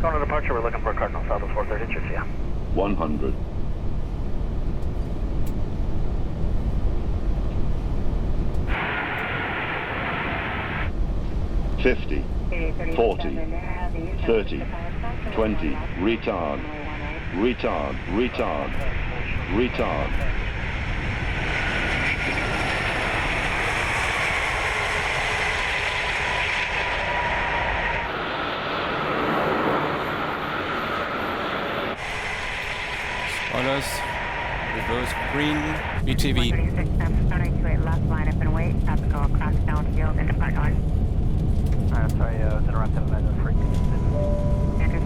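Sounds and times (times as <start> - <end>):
radio channel hiss: 0.0 - 2.3, 8.7 - 10.9, 32.0 - 38.2
cockpit rumble: 0.0 - 45.0
faint falling whine: 43.0 - 45.0.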